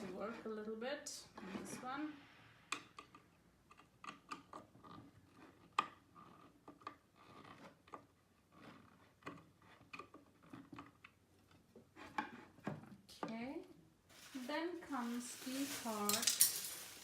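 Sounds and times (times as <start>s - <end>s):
wooden panels clicking and knocking: 9.2s - 13.3s.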